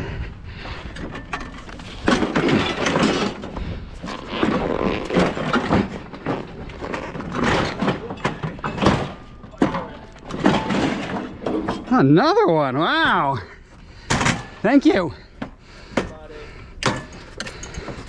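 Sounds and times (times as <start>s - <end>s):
scrap metal clattering and scraping: 0.8s - 12.2s.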